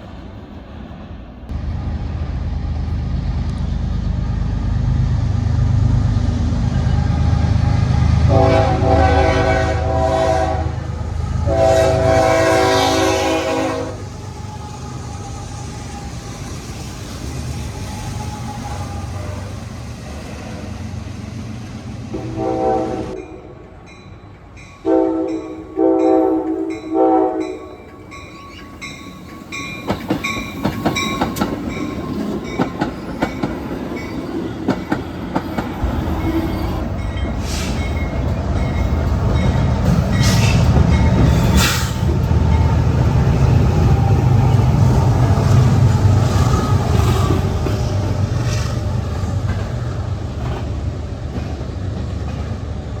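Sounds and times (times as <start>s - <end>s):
diesel locomotive rumble: 0.0s - 23.2s, 28.4s - 53.0s
train horn blasts: 6.7s - 14.1s, 22.1s - 23.5s, 24.8s - 27.9s.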